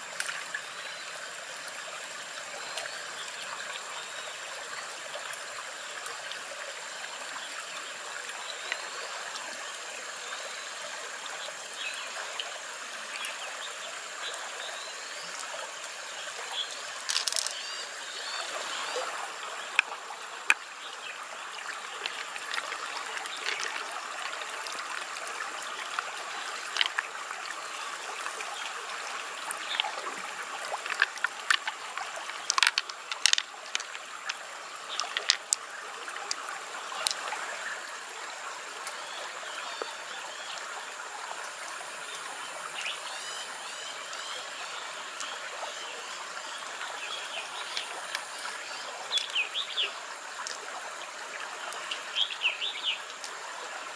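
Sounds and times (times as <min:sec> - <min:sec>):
water trickling and lapping: 0:00.0 - 0:53.9
small splashes and drips: 0:11.4 - 0:42.2, 0:44.0 - 0:53.9.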